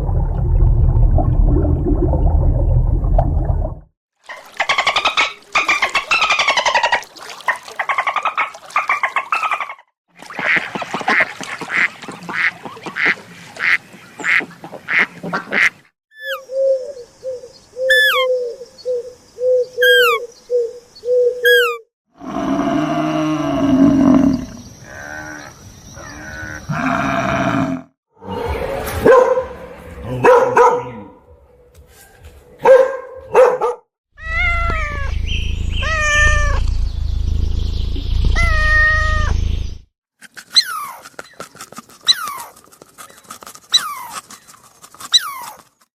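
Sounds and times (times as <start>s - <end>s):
farm animal calls: 12.4s - 16.4s, 17.9s - 18.4s, 19.8s - 20.2s, 21.4s - 21.8s
bird chirps: 16.2s - 21.8s, 34.3s - 39.8s.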